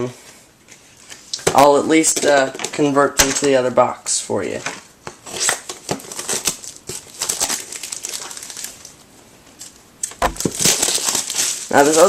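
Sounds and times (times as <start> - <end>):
cardboard and cards rustling: 10.0 - 12.0.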